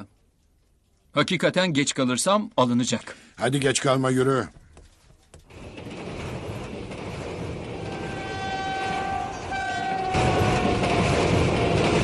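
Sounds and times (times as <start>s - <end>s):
train running on rails: 5.3s - 12.0s
train horn blasts: 7.7s - 11.0s.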